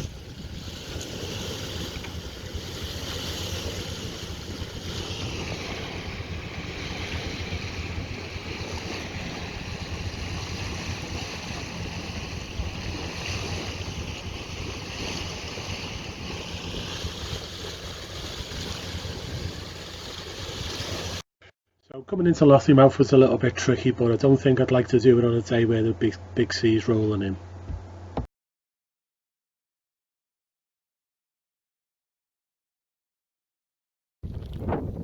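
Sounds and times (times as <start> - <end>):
sea water rushing past hull: 0.0 - 21.2
wind buffeting microphone: 0.0 - 21.2, 34.2 - 35.0.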